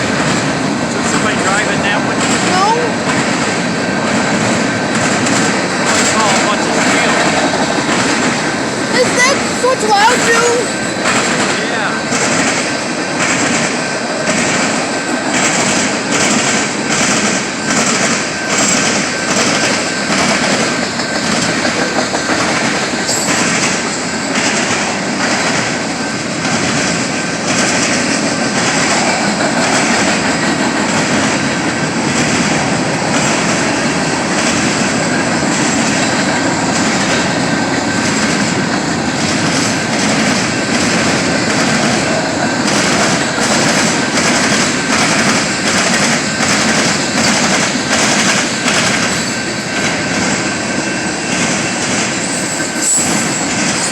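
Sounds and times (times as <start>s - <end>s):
train rumbling past: 0.0s - 53.9s
wheels clicking over rail joints: 0.1s - 50.3s
high squeal: 52.2s - 53.9s.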